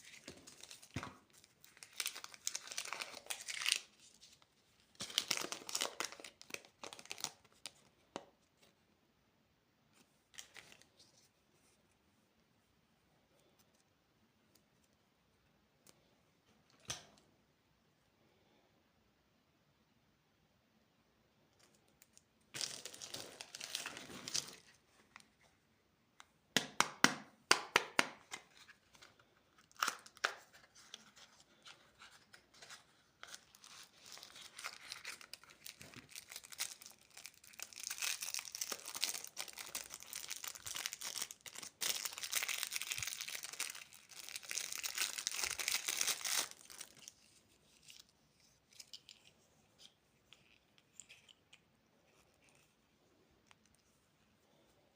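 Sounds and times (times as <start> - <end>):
packaging crinkling: 0.0 - 7.8, 22.6 - 24.8, 29.0 - 48.1.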